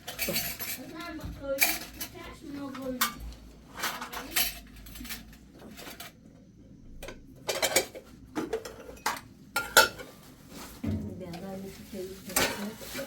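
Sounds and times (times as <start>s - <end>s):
dishes and utensils clinking: 0.0s - 6.2s, 7.0s - 10.2s, 12.2s - 13.0s.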